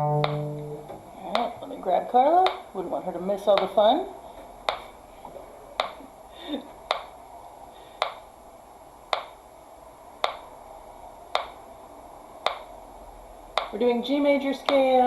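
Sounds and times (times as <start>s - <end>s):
metronome clicking: 0.0s - 1.6s, 4.7s - 4.9s, 9.1s - 9.4s, 10.2s - 10.5s, 11.4s - 11.6s, 12.4s - 12.7s, 13.6s - 13.8s.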